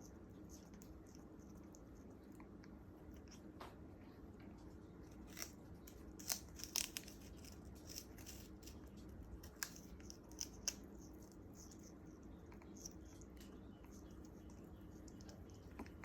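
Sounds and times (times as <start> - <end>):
faint steady hum: 0.0 - 16.0
parrot beak crunching sugarcane: 5.1 - 16.0.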